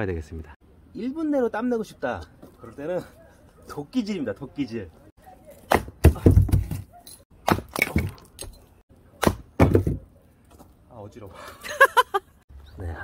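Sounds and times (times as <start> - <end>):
axe splitting firewood: 5.5 - 8.6, 9.2 - 10.1.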